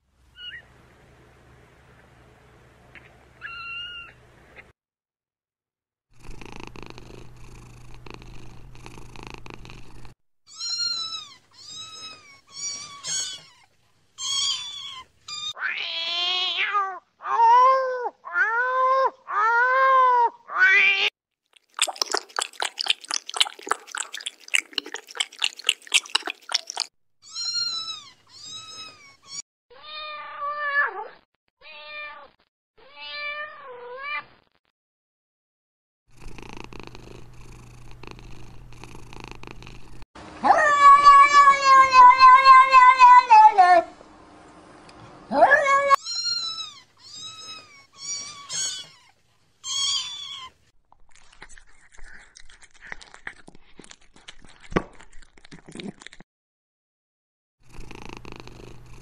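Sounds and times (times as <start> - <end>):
cat purring: 6.1 - 10.2, 36.1 - 40.0, 57.6 - 59.0
cat meowing: 10.5 - 21.1, 27.2 - 34.3, 40.4 - 43.8, 45.3 - 50.6.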